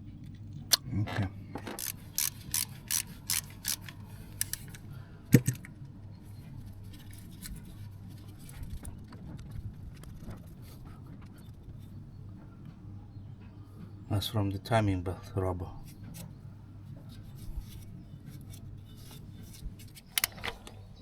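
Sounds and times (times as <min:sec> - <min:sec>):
faint handling noise: 0:00.0 - 0:12.8, 0:15.8 - 0:21.0
sharp metallic clicks: 0:01.7 - 0:04.8.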